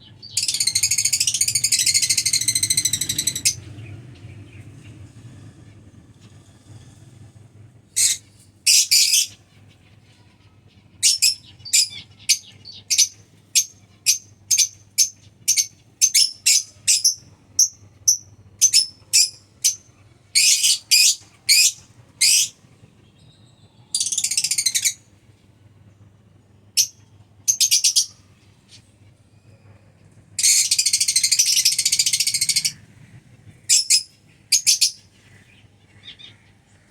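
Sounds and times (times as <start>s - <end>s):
lovebirds shrill chirps: 0.1s - 3.7s, 8.0s - 9.4s, 11.0s - 22.6s, 23.4s - 25.0s, 26.8s - 28.8s, 30.4s - 32.8s, 33.7s - 36.4s.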